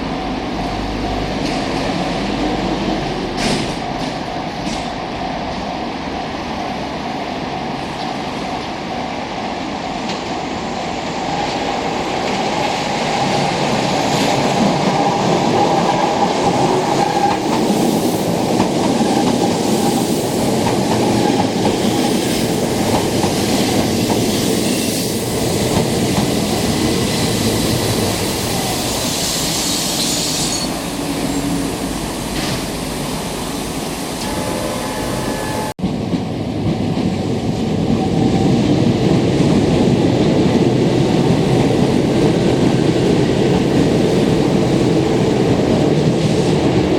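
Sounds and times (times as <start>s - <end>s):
train wheels rumbling and clattering: 0.0s - 46.9s
high wheel squeal: 28.5s - 32.0s, 34.2s - 35.8s.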